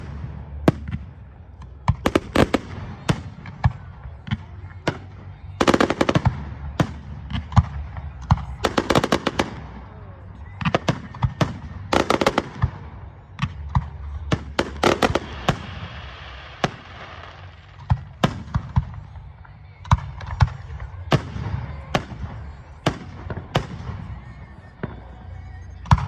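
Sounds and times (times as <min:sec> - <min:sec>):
firework bangs: 0:01.8 - 0:09.8, 0:10.6 - 0:19.2
rapid firework crackling: 0:08.5 - 0:09.8, 0:13.6 - 0:19.1.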